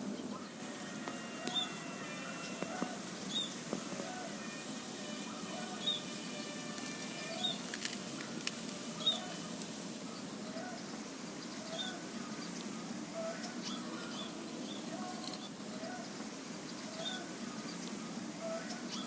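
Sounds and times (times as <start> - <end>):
low background noise: 0.0 - 19.0
small birds chirping: 0.0 - 19.0
dove cooing: 0.4 - 6.1, 16.9 - 19.0.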